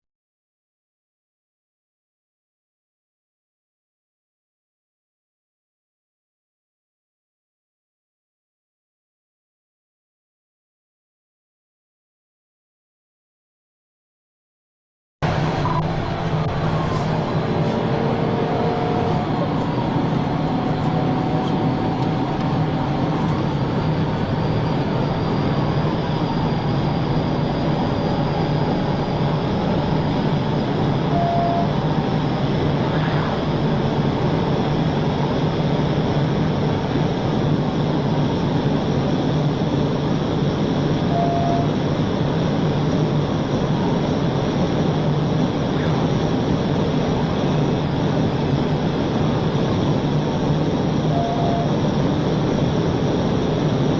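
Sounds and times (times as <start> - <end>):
car driving at highway speed: 15.2 - 53.9
short beeps: 15.6 - 15.9, 31.1 - 31.8, 41.1 - 41.8, 51.1 - 51.8.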